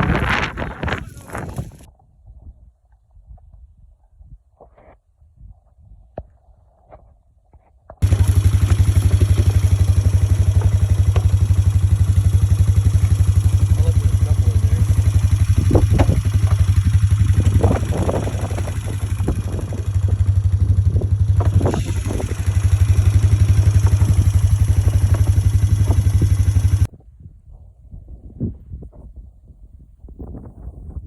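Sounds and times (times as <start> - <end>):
atv engine running: 0.0 - 1.9, 8.0 - 26.9.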